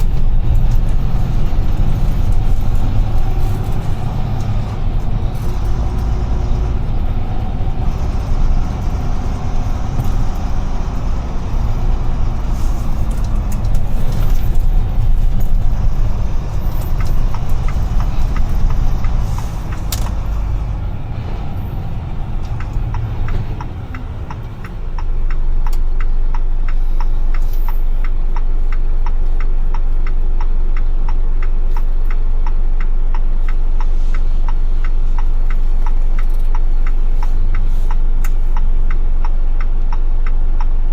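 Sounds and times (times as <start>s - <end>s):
truck diesel engine idling: 0.0s - 27.0s
turn signal ticking: 0.0s - 40.9s.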